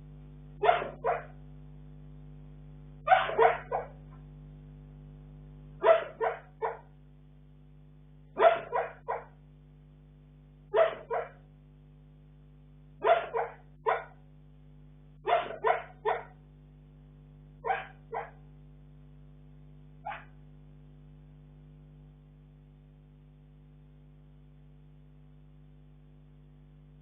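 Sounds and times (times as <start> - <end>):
dog barking in sleep: 0.6 - 1.4, 3.1 - 4.2, 5.8 - 6.9, 8.3 - 9.4, 10.7 - 11.5, 13.0 - 14.2, 15.2 - 16.4, 17.6 - 18.5, 20.0 - 20.4.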